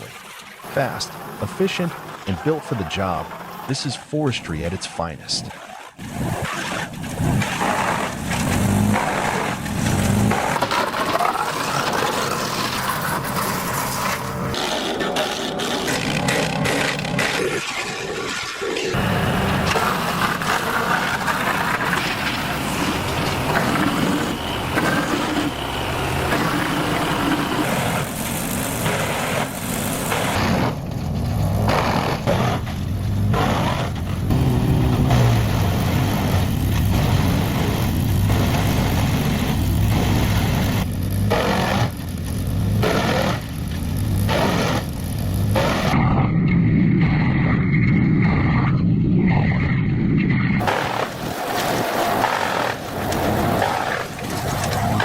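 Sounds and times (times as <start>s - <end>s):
wood chipper engine running: 6.0s - 17.4s, 18.9s - 46.0s, 50.6s - 55.0s
sharp crunches of wood: 27.4s - 46.0s.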